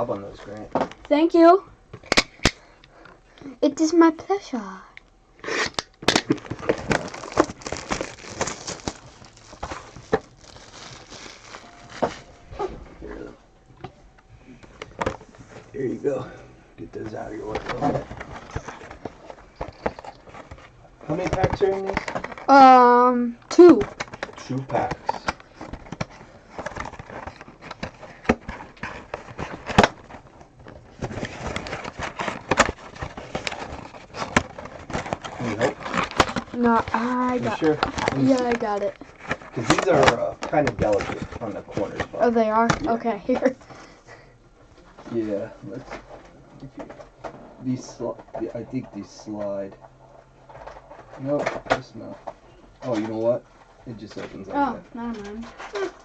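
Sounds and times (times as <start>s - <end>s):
plastic wrap crinkling: 5.4s - 13.3s, 17.1s - 43.8s.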